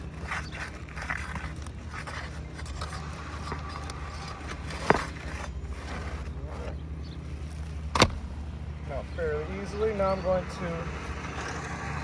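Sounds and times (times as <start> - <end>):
shingle scraping and rustling: 0.0 - 12.0
steady low hum: 0.0 - 12.0.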